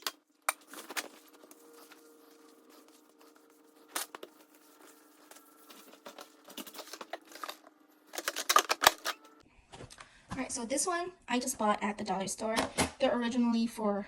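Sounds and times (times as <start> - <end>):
food packages rustling and clicking: 0.0 - 9.4
containers clattering: 5.6 - 9.3.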